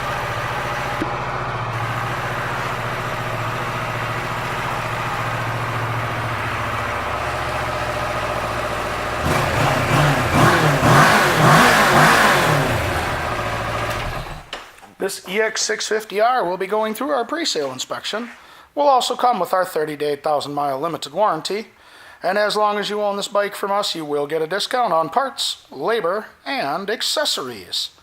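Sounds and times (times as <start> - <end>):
motorcycle engine idling and revving: 0.0 - 14.5.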